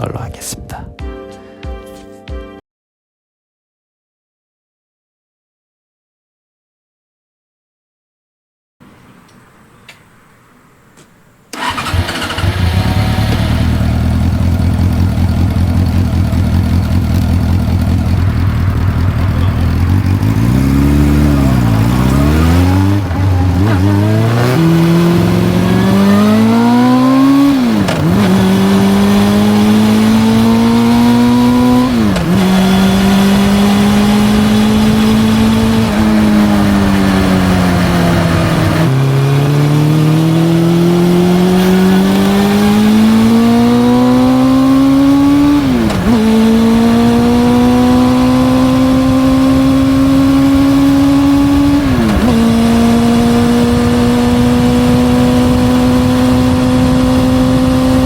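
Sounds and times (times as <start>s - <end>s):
motorcycle engine accelerating: 11.5s - 58.0s.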